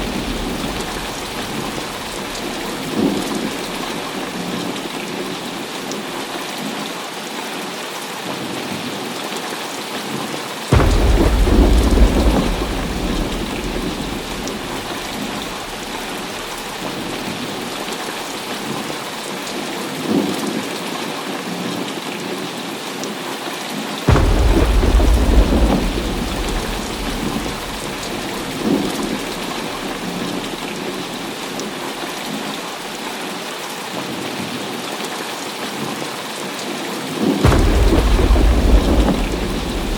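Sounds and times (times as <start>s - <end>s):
thunder claps and rumbles: 0.0s - 5.7s, 10.7s - 18.6s, 24.1s - 31.8s, 37.4s - 39.9s
heavy rain falling: 0.0s - 39.9s.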